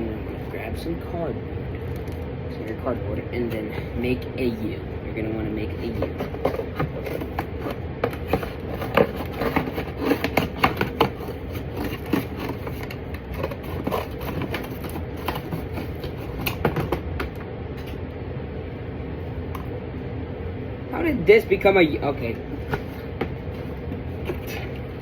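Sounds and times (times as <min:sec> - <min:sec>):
hands handling cardboard: 0:05.8 - 0:17.4, 0:22.5 - 0:25.0.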